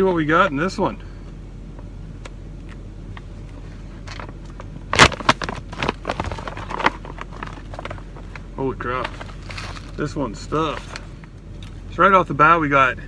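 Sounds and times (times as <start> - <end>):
steady low hum: 0.0 - 13.0
packaging crinkling: 4.9 - 11.9
plastic pouch ripping open: 5.0 - 8.4, 9.0 - 11.2.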